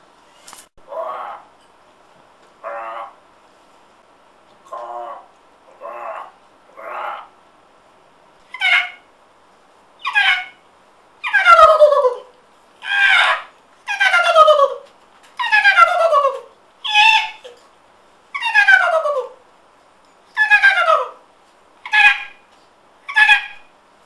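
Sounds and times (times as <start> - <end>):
person imitating bird call: 0.9 - 1.5, 4.7 - 7.3, 10.0 - 10.6, 11.2 - 17.6, 18.4 - 19.4, 20.4 - 21.2, 21.9 - 22.4, 23.1 - 23.7.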